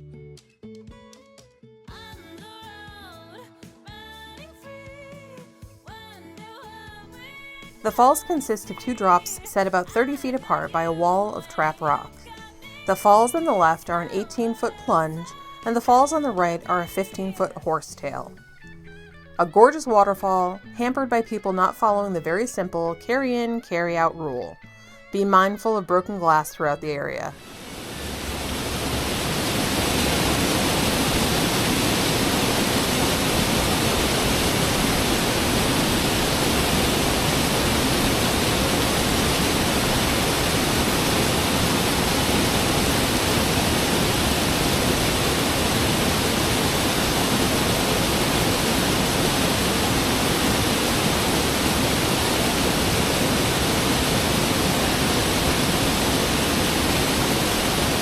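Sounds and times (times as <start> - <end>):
waterfall rushing: 27.4 - 58.0.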